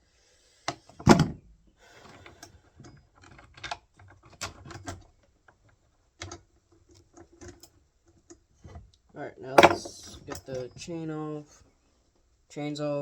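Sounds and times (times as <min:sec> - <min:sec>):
small clicks and scraping: 0:02.0 - 0:10.8.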